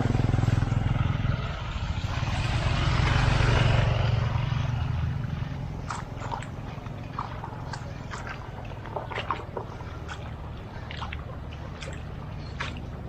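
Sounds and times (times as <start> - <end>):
vehicle engine passing: 0.0 - 13.0.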